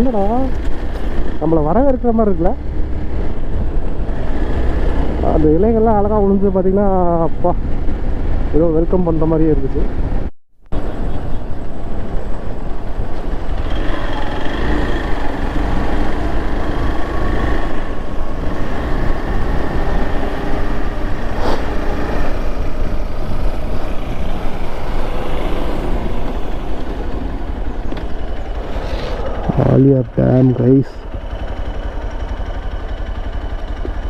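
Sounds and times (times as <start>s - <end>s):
motorcycle engine hum: 0.0s - 34.0s.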